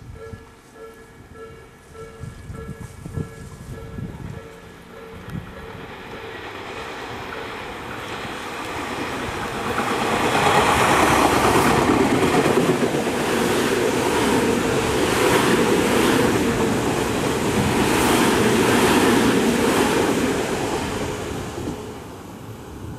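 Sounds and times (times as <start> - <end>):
electric train passing: 0.0 - 22.9
wheels clacking over rail joints: 4.4 - 21.9.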